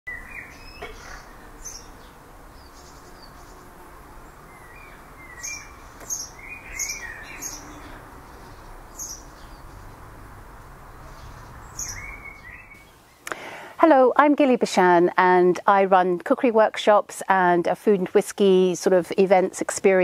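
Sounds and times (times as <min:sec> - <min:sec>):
small birds chirping: 0:00.1 - 0:13.6
faint outdoor background hiss: 0:00.1 - 0:20.0.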